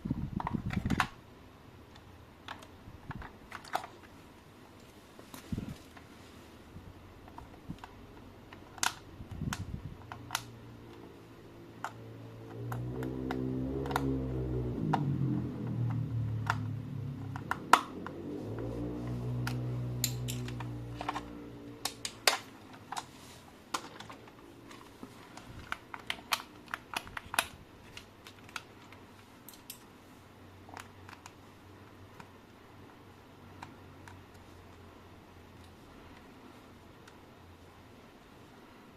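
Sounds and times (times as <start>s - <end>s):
low humming: 9.0s - 28.8s.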